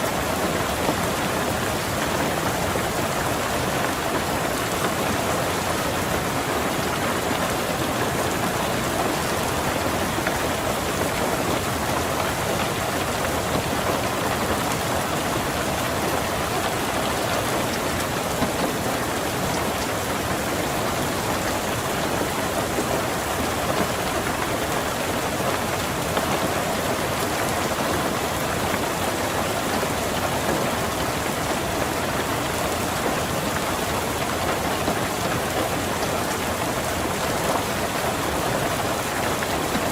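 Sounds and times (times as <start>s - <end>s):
rain pattering on a car: 0.0s - 39.9s.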